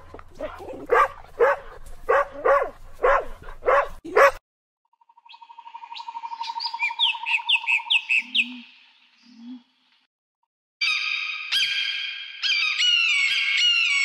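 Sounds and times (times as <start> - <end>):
dog barking: 0.4 - 4.4.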